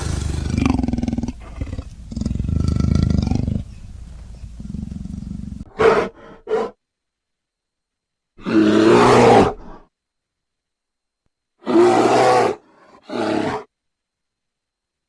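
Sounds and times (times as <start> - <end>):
large animal roaring and growling: 0.0 - 5.7.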